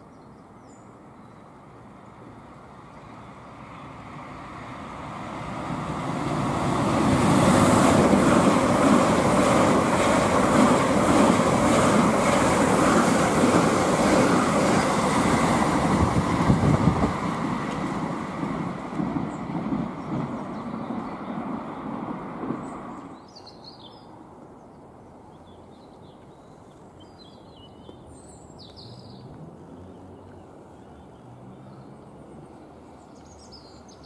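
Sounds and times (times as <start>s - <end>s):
train wheels rumbling on rails: 4.8s - 23.2s.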